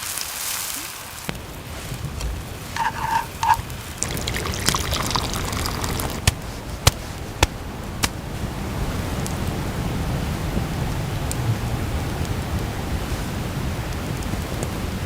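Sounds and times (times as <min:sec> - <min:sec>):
campfire crackling and popping: 0:00.0 - 0:08.5
liquid pouring and gurgling: 0:02.8 - 0:06.2
steady low rumble: 0:06.1 - 0:15.0.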